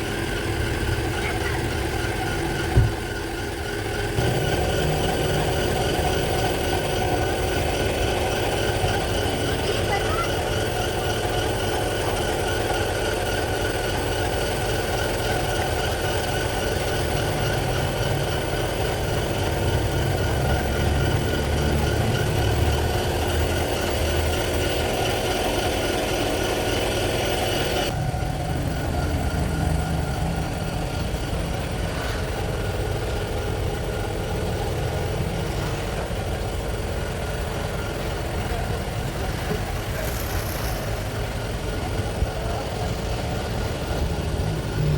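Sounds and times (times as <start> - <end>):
pressure washer motor drone: 0.0 - 44.9.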